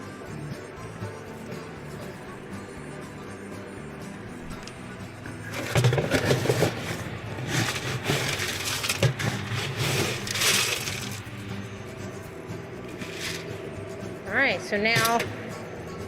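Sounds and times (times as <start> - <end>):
crunching and rustling handling: 5.5 - 11.4.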